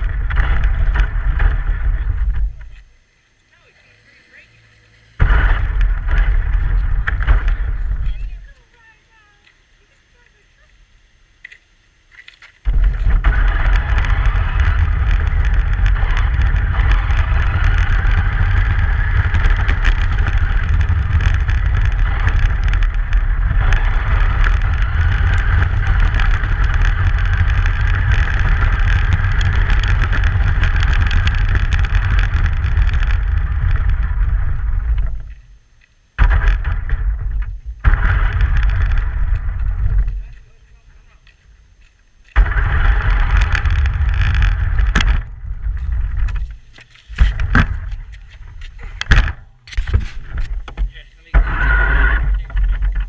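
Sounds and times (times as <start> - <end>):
truck rumbling on snowy road: 0.0 - 2.8, 3.8 - 8.5, 12.7 - 35.4, 42.4 - 50.7.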